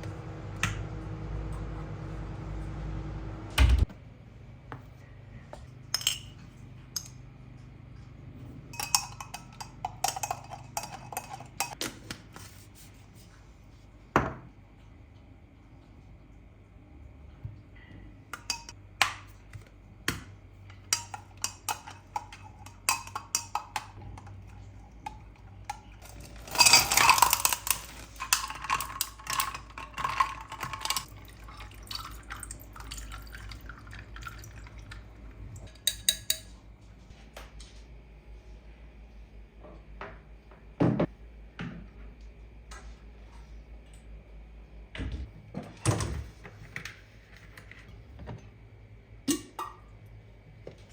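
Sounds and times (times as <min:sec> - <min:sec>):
liquid pouring into a glass: 0:30.1 - 0:35.1.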